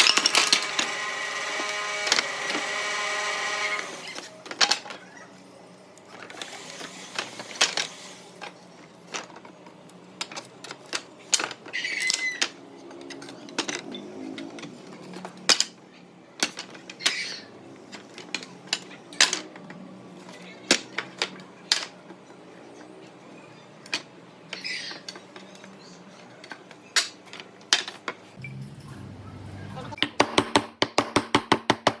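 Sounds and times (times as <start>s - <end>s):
wood pieces clicking and knocking: 0.0s - 5.1s, 10.2s - 15.8s, 16.4s - 17.3s, 20.3s - 22.1s.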